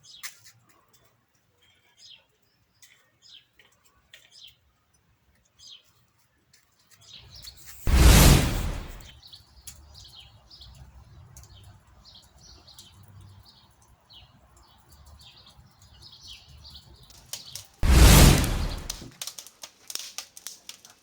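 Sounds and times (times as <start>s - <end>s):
faint low rumble: 7.9s - 9.1s, 17.8s - 19.1s
loud burst of noise: 7.9s - 9.1s, 17.8s - 19.1s.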